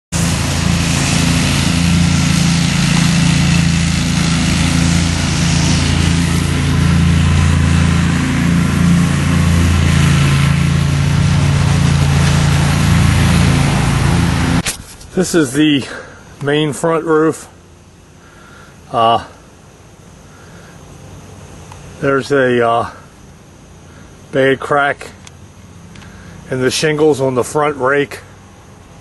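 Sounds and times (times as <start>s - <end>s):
small engine running: 0.1s - 16.3s.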